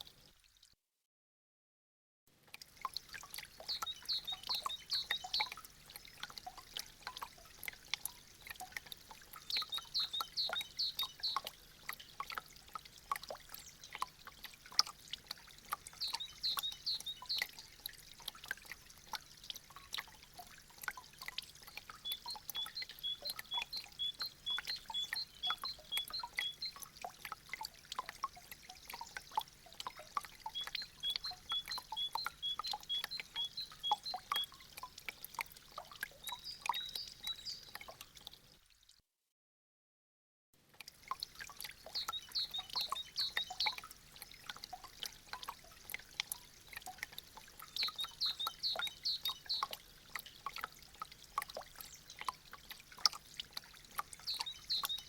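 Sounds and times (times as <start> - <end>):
water dripping and splashing: 0.0 - 0.8, 2.3 - 39.0, 40.6 - 55.0
water trickling: 0.0 - 0.8, 2.3 - 39.0, 40.6 - 55.0.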